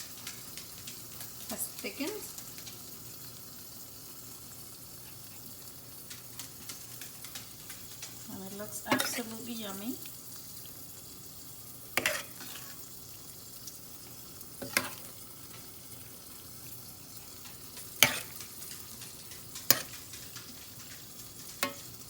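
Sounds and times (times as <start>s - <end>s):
faint steady hiss: 0.0s - 22.0s
spoon stirring thick food in pot: 5.0s - 22.0s.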